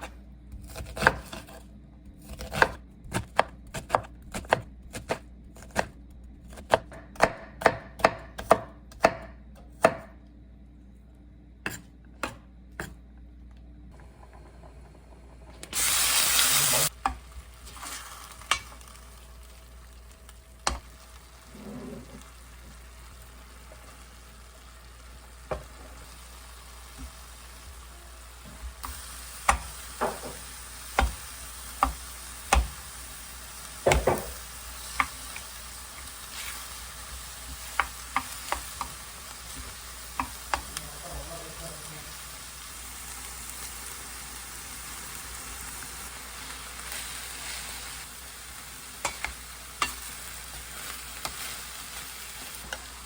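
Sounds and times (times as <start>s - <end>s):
knife chopping on cutting board: 0.0s - 1.6s, 2.2s - 5.9s, 6.5s - 10.2s, 11.6s - 13.0s, 29.4s - 32.8s, 33.8s - 35.2s, 37.5s - 39.0s
food frying sizzle: 15.7s - 53.0s
loud hiss: 15.8s - 16.9s.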